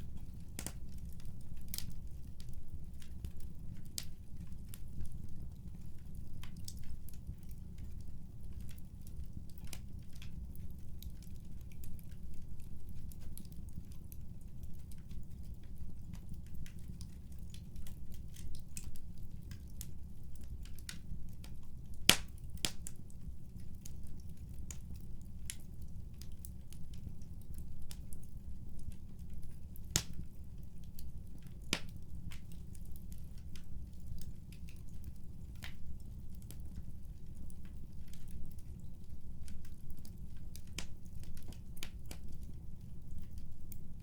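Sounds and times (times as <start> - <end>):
wood fire crackling: 0.0 - 44.0
sharp fire pops: 22.1 - 22.8.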